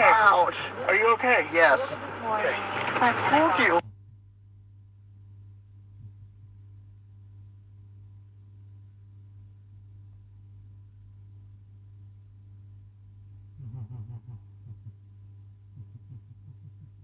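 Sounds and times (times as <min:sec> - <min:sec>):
steady low hum: 0:00.0 - 0:17.0
faint tick: 0:09.7 - 0:10.0.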